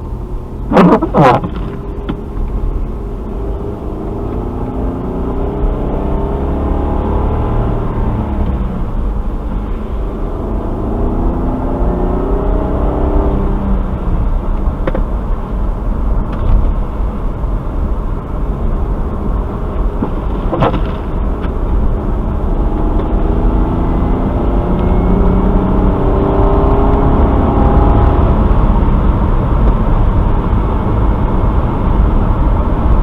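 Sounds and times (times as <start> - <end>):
car engine accelerating: 0.0 - 33.0
road noise: 0.0 - 33.0.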